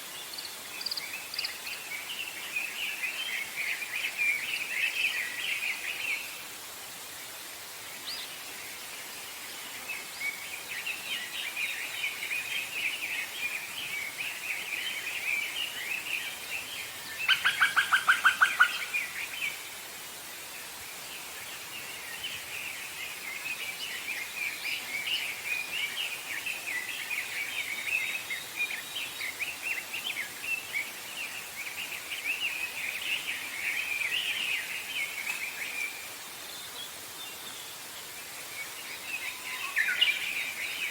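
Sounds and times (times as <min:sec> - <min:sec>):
songbirds twittering: 0:00.0 - 0:06.4, 0:07.2 - 0:40.9
background hiss: 0:00.0 - 0:40.9.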